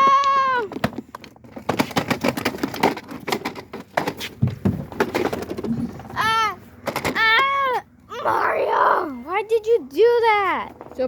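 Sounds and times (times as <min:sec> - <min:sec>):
plastic toys clattering: 0:00.0 - 0:07.4
child calling out: 0:06.2 - 0:06.6, 0:07.2 - 0:09.3.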